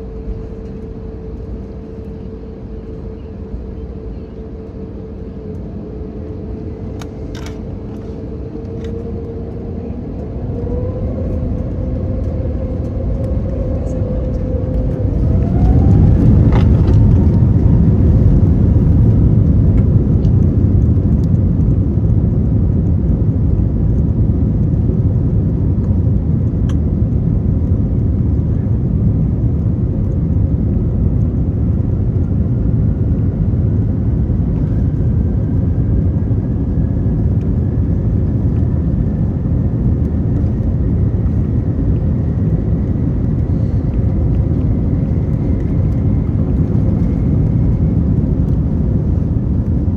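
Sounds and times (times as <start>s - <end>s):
aircraft cabin engine rumble: 0.0s - 49.9s
engine whine rising in pitch: 4.6s - 22.2s, 31.2s - 49.9s.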